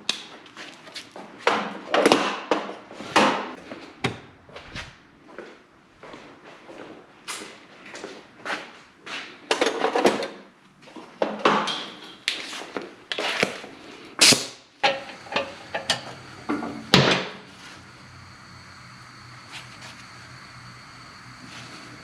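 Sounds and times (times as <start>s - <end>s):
metal tools clanking: 14.8s - 17.0s
faint steady hum: 14.8s - 22.0s.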